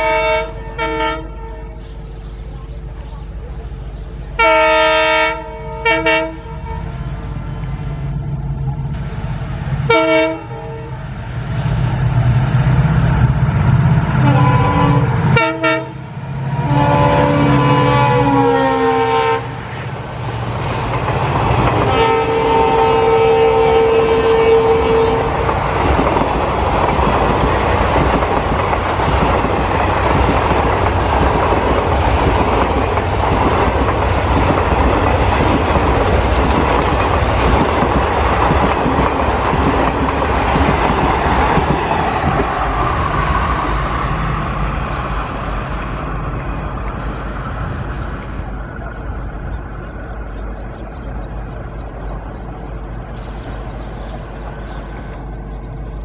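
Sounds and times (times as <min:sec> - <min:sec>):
train horn: 0:00.0 - 0:01.9, 0:04.4 - 0:07.6, 0:09.9 - 0:11.0, 0:14.2 - 0:19.8, 0:21.8 - 0:25.6
train wheels rumbling on rails: 0:00.0 - 0:56.0.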